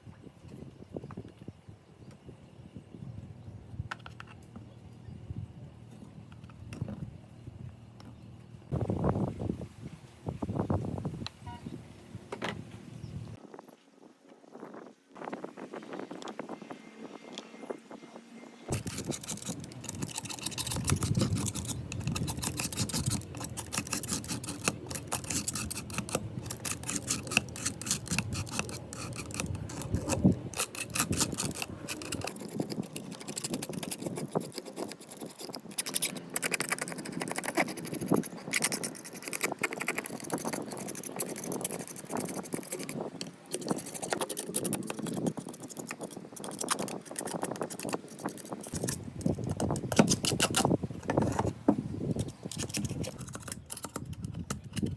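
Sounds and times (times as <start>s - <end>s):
small metal clinks and rattles: 18.7s - 50.7s, 52.2s - 54.9s
hand scrubbing and scraping: 18.7s - 53.8s.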